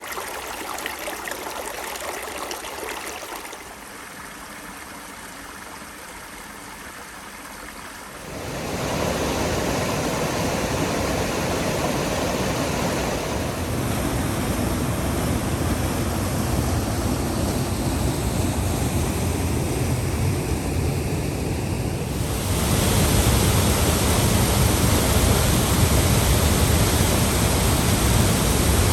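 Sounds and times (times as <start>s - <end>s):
rushing water: 0.0s - 20.6s, 21.4s - 28.9s.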